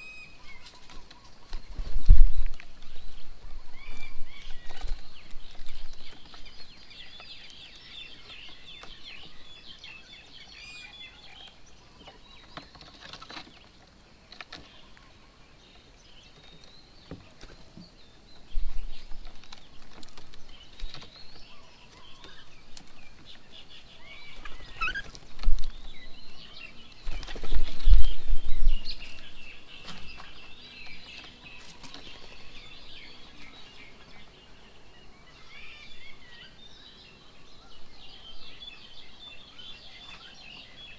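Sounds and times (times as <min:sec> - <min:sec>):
small birds chattering: 0:00.0 - 0:40.9
wing flaps: 0:01.5 - 0:02.8.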